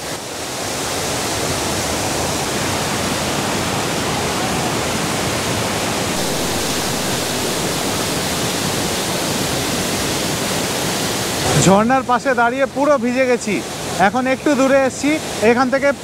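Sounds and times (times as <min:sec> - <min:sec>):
waterfall rushing: 0:06.2 - 0:11.5.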